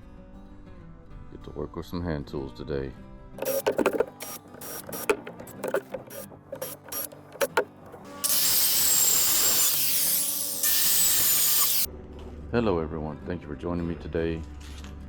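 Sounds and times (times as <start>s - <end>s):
power tool cutting wood: 3.4s - 11.9s.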